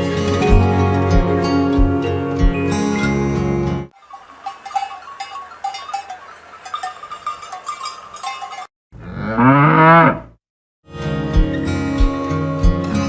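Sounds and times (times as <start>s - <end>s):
faint ringing clinks: 4.0s - 8.7s
cow mooing: 9.0s - 10.4s.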